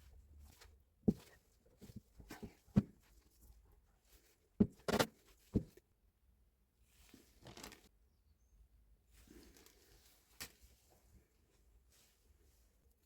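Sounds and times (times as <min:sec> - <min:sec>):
soft rustle or scrape: 0:09.1 - 0:12.9.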